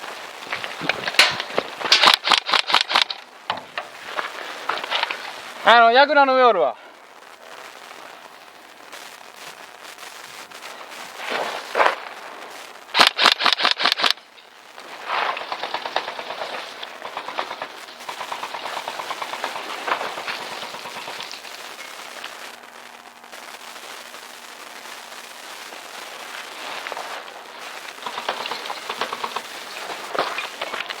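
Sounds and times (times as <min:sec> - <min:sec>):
airsoft gun full-auto fire: 0:01.9 - 0:03.2, 0:12.9 - 0:14.2.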